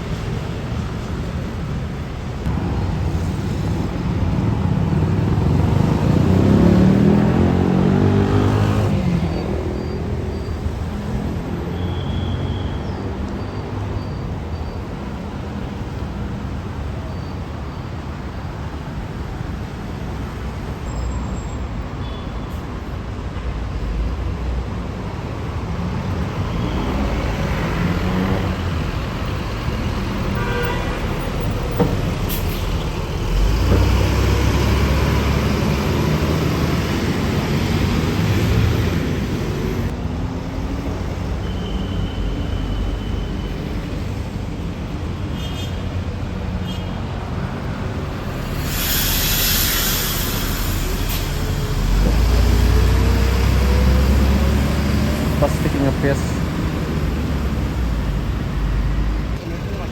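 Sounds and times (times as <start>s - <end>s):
heavy vehicle rumbling past: 0.0s - 12.6s, 23.7s - 45.3s, 46.0s - 59.9s
passing road traffic: 0.0s - 59.9s
car horn: 30.2s - 31.4s.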